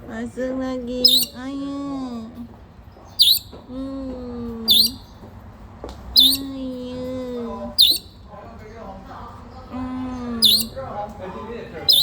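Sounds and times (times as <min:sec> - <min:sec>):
pet bird whistling: 0:01.0 - 0:01.4, 0:03.1 - 0:03.7, 0:04.6 - 0:05.1, 0:06.1 - 0:06.5, 0:07.7 - 0:08.2, 0:10.4 - 0:10.8, 0:11.8 - 0:12.0.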